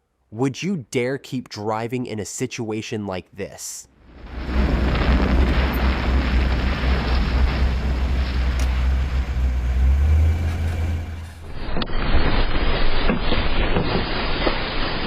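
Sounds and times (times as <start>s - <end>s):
earthquake ground rumbling: 4.0s - 15.0s.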